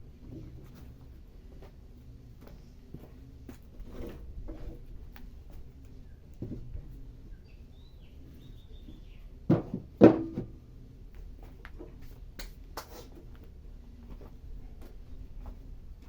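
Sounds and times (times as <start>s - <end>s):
faint high bird chirp: 7.2s - 9.3s.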